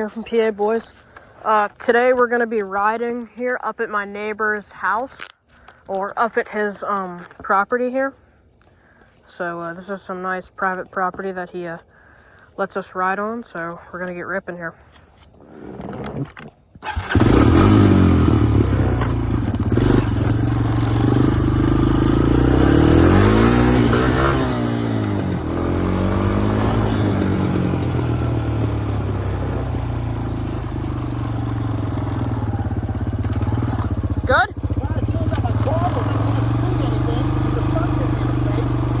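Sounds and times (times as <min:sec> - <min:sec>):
atv engine revving: 0:15.5 - 0:39.0.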